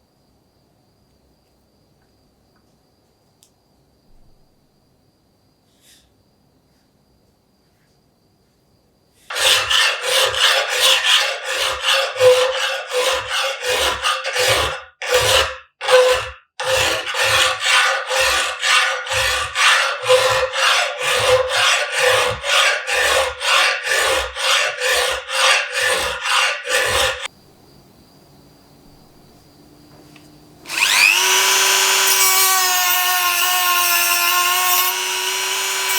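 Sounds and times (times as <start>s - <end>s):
hand file stroking on steel: 9.3s - 27.3s, 30.6s - 35.9s.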